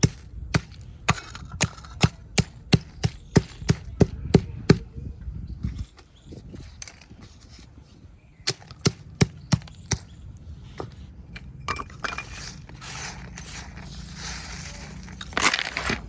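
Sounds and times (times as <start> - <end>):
clay cups cracking: 0.0 - 4.0, 8.4 - 16.0
clay pieces crunching: 0.0 - 4.0, 11.8 - 16.0.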